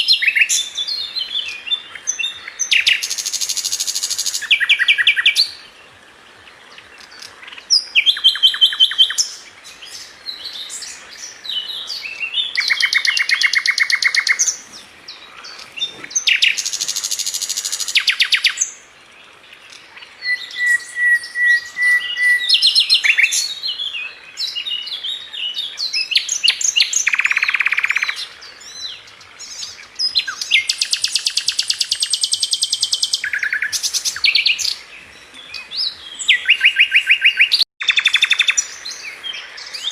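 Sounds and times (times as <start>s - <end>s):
songbird singing trills and chirps: 0.0s - 39.9s.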